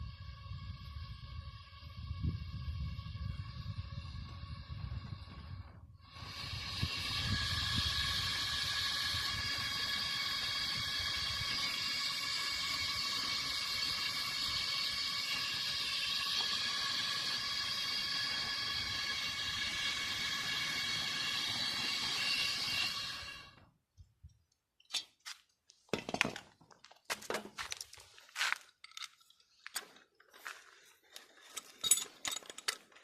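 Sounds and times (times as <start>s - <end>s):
short clinks and knocks: 31.5s - 33.0s.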